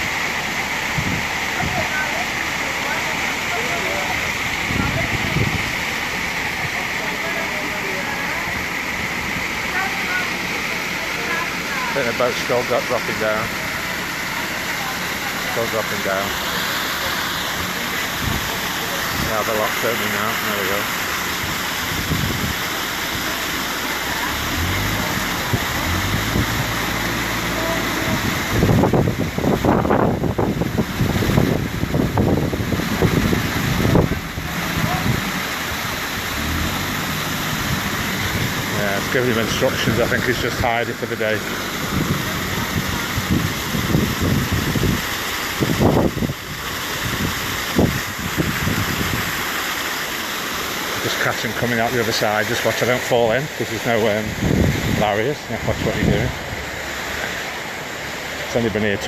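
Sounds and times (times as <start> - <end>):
water rushing through lock gates: 0.0 - 59.0
wind buffeting microphone: 0.9 - 1.9, 4.5 - 5.9, 21.4 - 22.7, 28.0 - 40.6, 41.4 - 49.5, 54.3 - 56.7.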